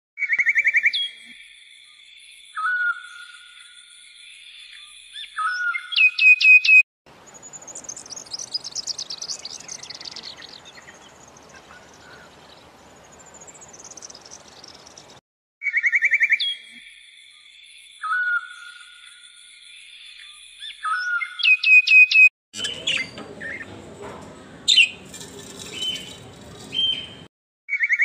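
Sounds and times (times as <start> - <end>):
whistled bird calls: 0.2 - 6.8, 15.6 - 19.3, 20.1 - 23.7, 25.6 - 28.0
birds chirping trills: 7.1 - 15.2, 22.6 - 27.9.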